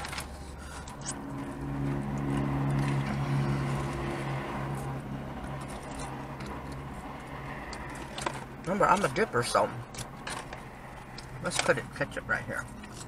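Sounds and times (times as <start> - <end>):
vehicle engine humming: 0.0 - 13.0
low rumble: 0.4 - 8.7.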